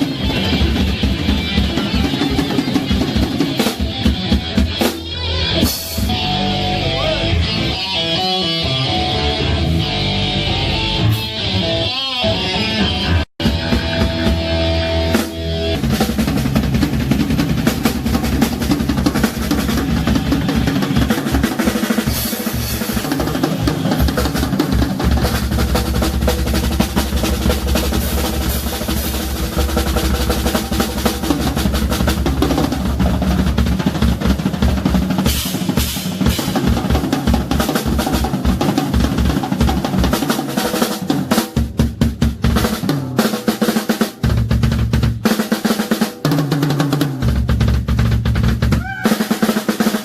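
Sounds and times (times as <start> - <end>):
fast snare and bass drum hits: 0.0 - 6.3, 13.4 - 50.0
heavy metal band playing: 0.0 - 50.0.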